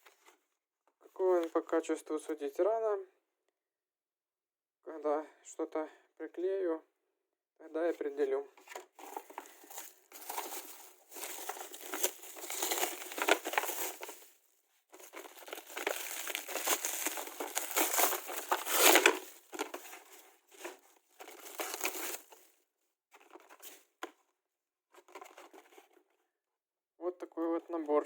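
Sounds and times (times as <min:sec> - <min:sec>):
packaging rustling and crackling: 0:08.8 - 0:22.5.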